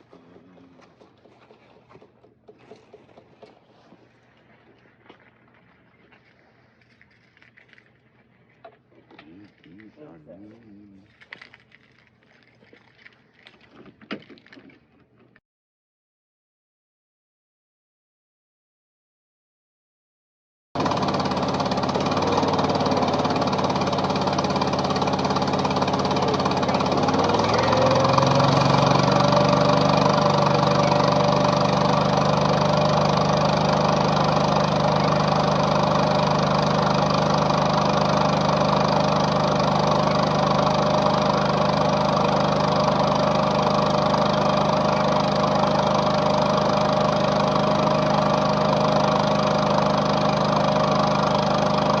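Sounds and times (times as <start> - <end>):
loader engine running: 20.8 - 52.0.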